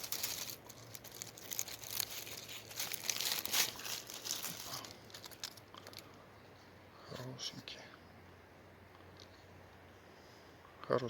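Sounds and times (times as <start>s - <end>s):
forest litter rustling and crackling: 0.0s - 6.2s.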